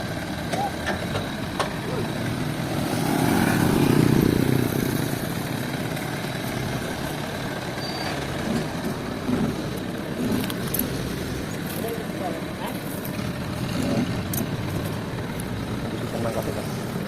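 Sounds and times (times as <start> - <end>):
sawmill machinery droning: 0.0 - 17.0.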